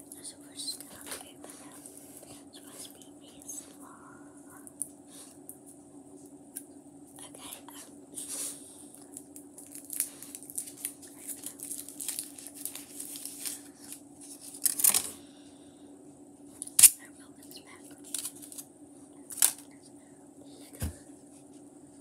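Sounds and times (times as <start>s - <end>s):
steady low hum: 0.0s - 22.0s
packaging crinkling and tearing: 9.1s - 15.1s, 18.0s - 18.6s.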